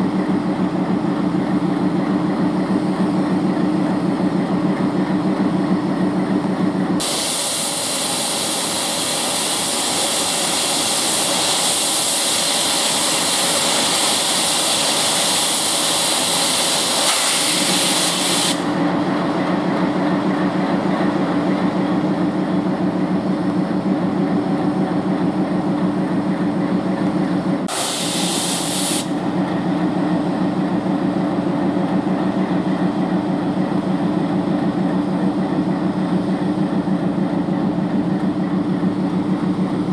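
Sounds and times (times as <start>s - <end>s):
diesel locomotive idling: 0.0s - 39.9s
compressed air hiss: 7.0s - 18.8s, 27.7s - 29.2s.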